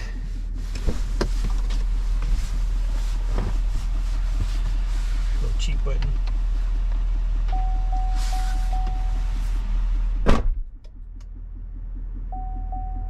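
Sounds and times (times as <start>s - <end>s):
pickup engine rumble inside cab: 0.0s - 13.0s
short tone beeping: 7.5s - 9.4s, 12.3s - 13.0s.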